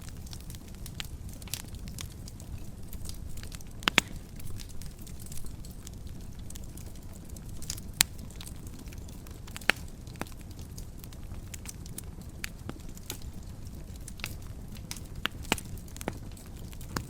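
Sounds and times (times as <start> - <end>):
sharp fire pops: 0.0 - 17.0
wood fire crackling: 0.0 - 17.0.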